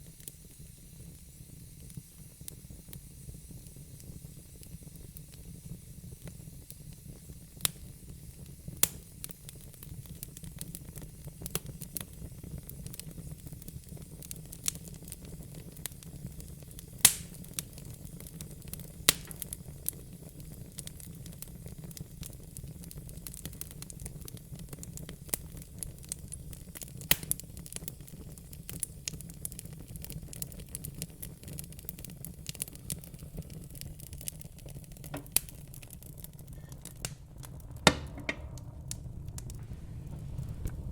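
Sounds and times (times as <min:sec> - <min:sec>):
wood fire crackling and popping: 0:00.0 - 0:40.9
steady low rumble: 0:36.2 - 0:40.9.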